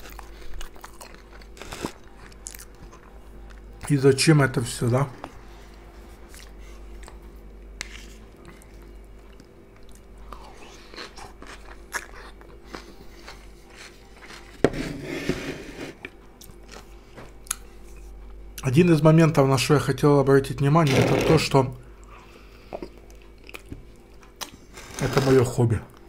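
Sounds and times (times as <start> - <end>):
man chewing crunchy salad: 0.0 - 3.9, 5.2 - 14.7, 22.0 - 24.8.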